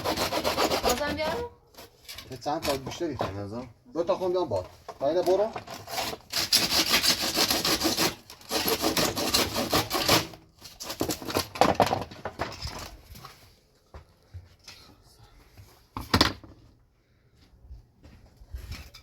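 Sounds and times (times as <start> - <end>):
hand tool rasping strokes: 0.0 - 3.0, 5.7 - 11.1.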